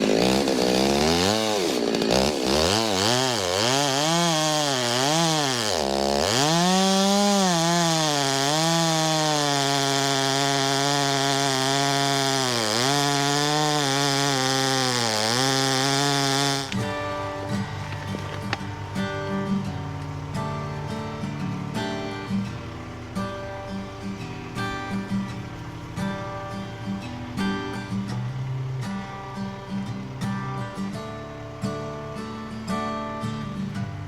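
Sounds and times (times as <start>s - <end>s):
chainsaw revving: 0.0s - 26.5s.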